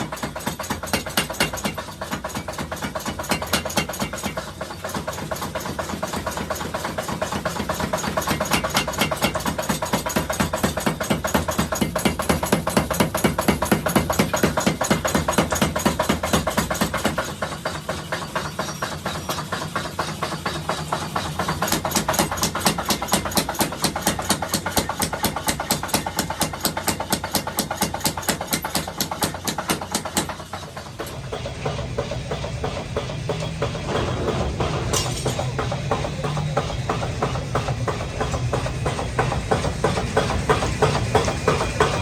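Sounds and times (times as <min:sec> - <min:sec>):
low machine hum: 0:30.9 - 0:42.0.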